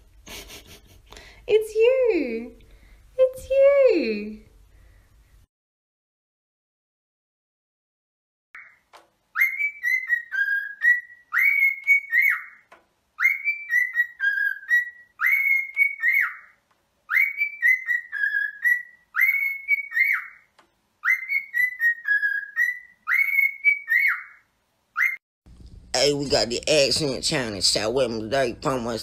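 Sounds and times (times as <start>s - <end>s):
bird whistling phrase: 9.4s - 12.6s, 13.2s - 20.4s, 21.0s - 24.4s, 25.0s - 25.2s.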